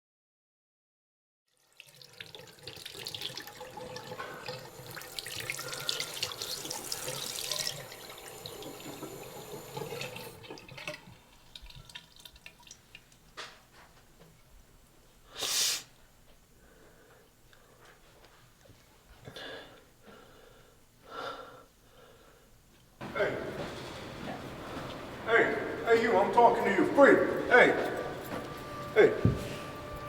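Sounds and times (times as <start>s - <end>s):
tap water running into sink: 1.6s - 13.3s
water drips: 1.8s - 13.4s.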